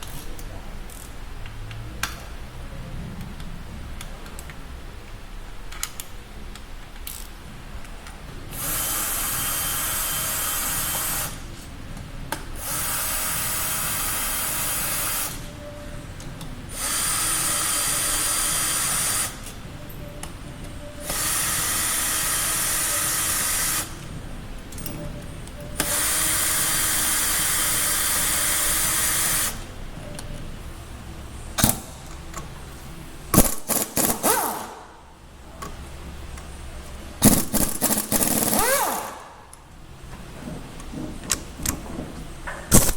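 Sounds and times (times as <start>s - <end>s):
power driver running: 37.2s - 39.3s.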